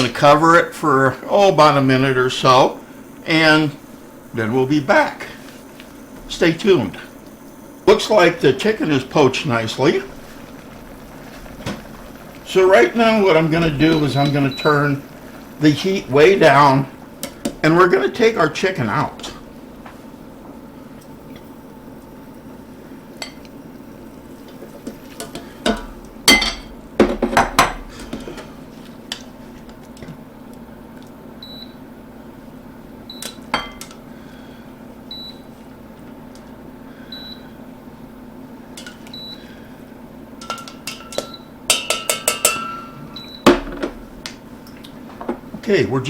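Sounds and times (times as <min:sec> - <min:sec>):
steady low hum: 0:00.0 - 0:46.0
metal utensils clanking on pan: 0:25.2 - 0:27.8, 0:40.4 - 0:43.7.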